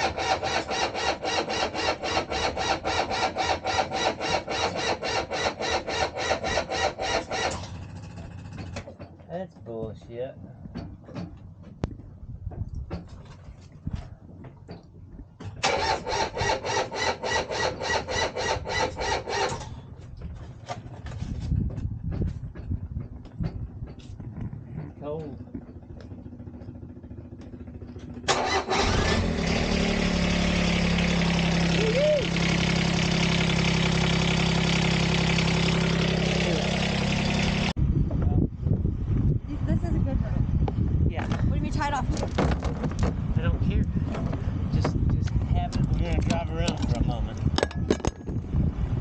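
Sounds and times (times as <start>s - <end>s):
diesel engine cranking: 0.0s - 9.2s, 15.3s - 37.8s, 41.2s - 49.0s
diesel engine idling: 25.1s - 37.8s.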